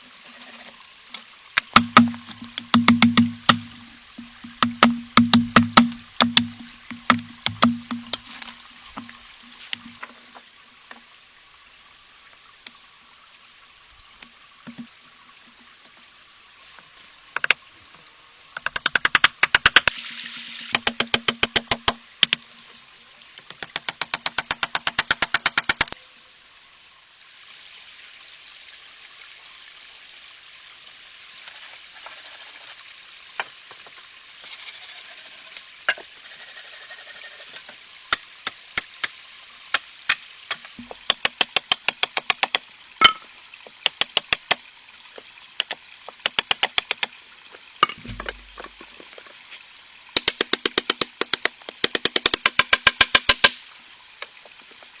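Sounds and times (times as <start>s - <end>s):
steady hiss: 0.0s - 29.1s, 30.8s - 55.0s
knife chopping on a board: 1.7s - 3.8s, 4.4s - 8.1s.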